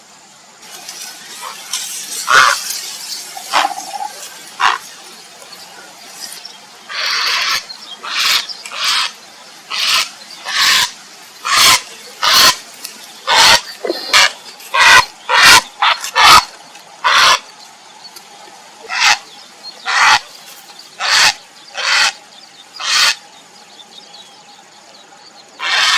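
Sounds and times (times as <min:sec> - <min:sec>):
heron harsh calls: 0:02.3 - 0:02.6, 0:03.5 - 0:04.8, 0:06.9 - 0:09.1, 0:09.7 - 0:12.6, 0:13.3 - 0:17.4, 0:18.9 - 0:19.2, 0:19.9 - 0:20.2, 0:21.0 - 0:22.2, 0:22.8 - 0:23.2, 0:25.6 - 0:25.9.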